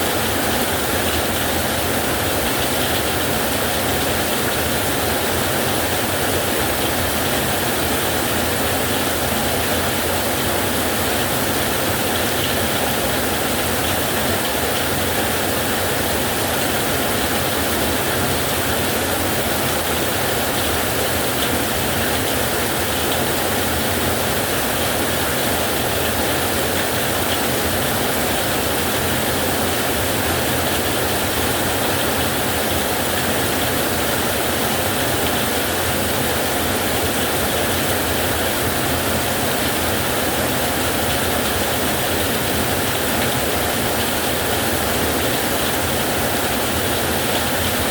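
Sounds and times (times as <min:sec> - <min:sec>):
heavy rain on a metal roof: 0:00.0 - 0:47.9.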